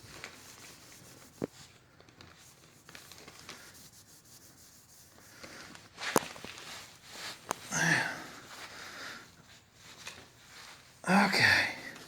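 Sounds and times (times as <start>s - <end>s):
cloth rubbing on metal: 0.0s - 1.7s, 2.3s - 7.7s.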